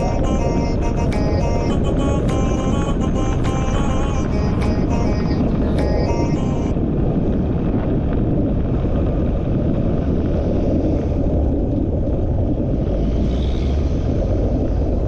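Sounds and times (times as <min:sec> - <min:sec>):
wind buffeting microphone: 0:00.0 - 0:15.0
vehicle rumbling along road: 0:08.8 - 0:15.0.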